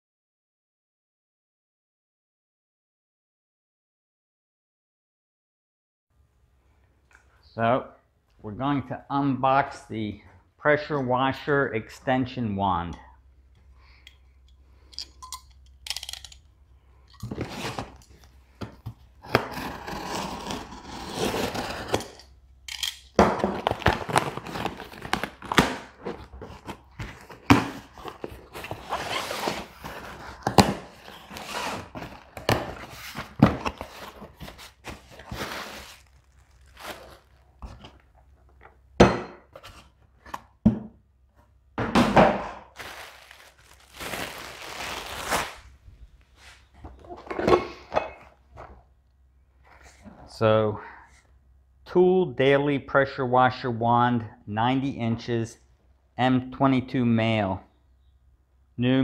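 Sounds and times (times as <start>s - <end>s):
package rustling and scraping: 17.2s - 22.3s, 23.4s - 38.6s, 42.7s - 47.3s
package thunks and knocks: 41.8s - 42.7s.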